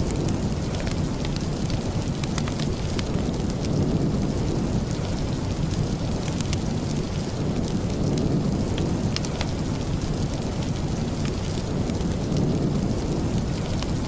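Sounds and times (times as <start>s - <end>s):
sharp crackles: 0.0s - 14.0s
steady rain: 0.0s - 14.0s.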